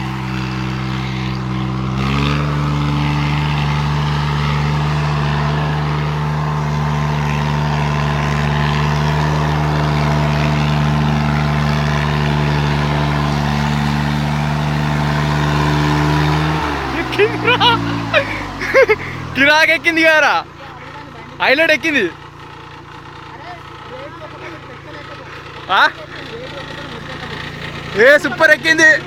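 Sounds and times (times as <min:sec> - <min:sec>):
tractor engine under load: 0:00.0 - 0:29.0.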